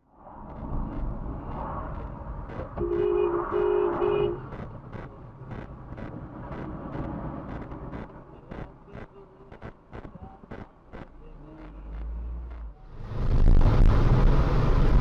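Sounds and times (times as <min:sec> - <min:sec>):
car engine and road noise: 0:00.0 - 0:15.0
car horn honks: 0:02.8 - 0:04.5
faint regular ticks: 0:03.9 - 0:12.7.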